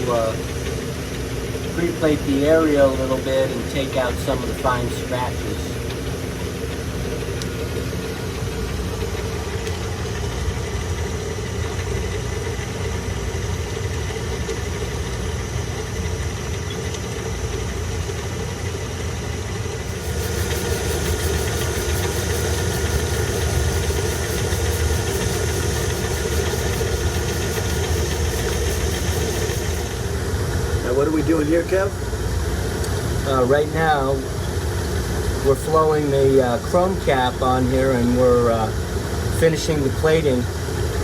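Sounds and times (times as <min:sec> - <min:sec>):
machinery droning: 0:00.0 - 0:41.0
fast fine ticking: 0:19.9 - 0:30.0.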